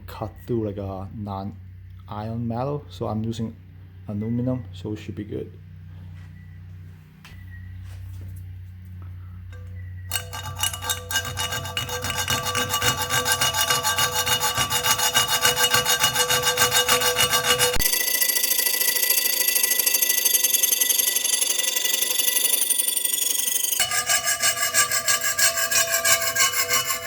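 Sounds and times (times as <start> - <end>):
handsaw cutting aluminum: 10.1 - 27.0.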